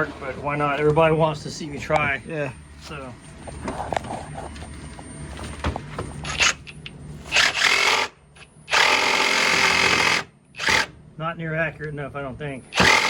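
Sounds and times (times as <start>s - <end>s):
reciprocating saw cutting: 7.3s - 10.9s.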